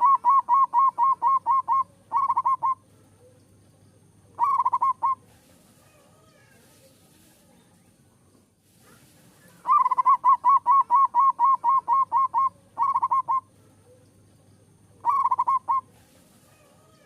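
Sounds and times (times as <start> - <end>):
dove cooing: 0.0 - 3.5, 4.3 - 6.6, 9.5 - 14.1, 14.8 - 17.0.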